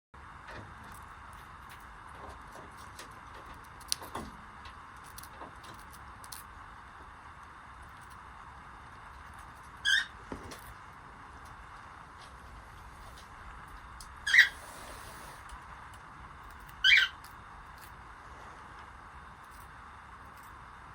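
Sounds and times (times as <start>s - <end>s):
faint falling squeak: 9.8s - 10.1s
cockatiel chirp: 9.8s - 10.2s, 14.2s - 14.6s, 16.8s - 17.2s.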